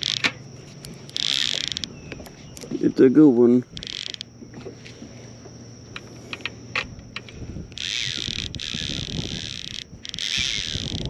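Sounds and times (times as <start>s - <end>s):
fishing reel drag buzzing: 0.0s - 2.7s, 3.6s - 4.3s, 6.0s - 11.0s
wind: 0.0s - 11.0s.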